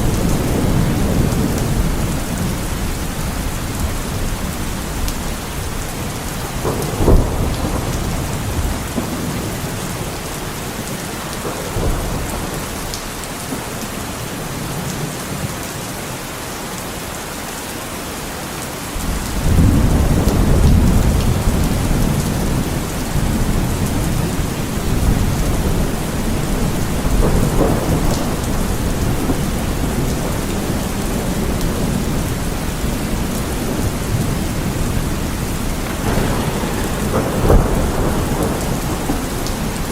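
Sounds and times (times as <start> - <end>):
low rumble of thunder: 0.0 - 15.5, 19.0 - 39.9
heavy rain falling: 0.0 - 39.9
thunder crack: 6.4 - 10.1, 33.6 - 39.9.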